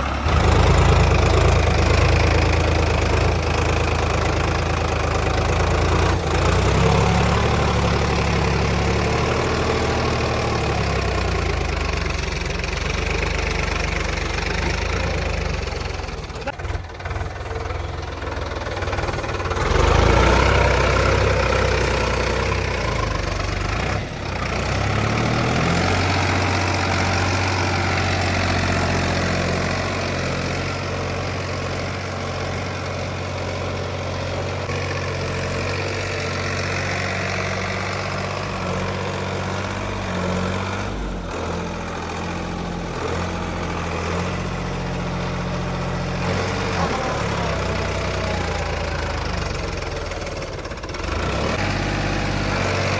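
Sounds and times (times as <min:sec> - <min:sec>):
diesel tractor engine running: 0:00.0 - 0:52.9.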